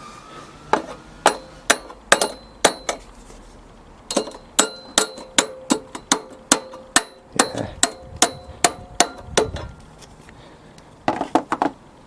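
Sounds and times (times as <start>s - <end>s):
hammer tapping on metal: 0.8s - 3.0s, 4.1s - 9.7s.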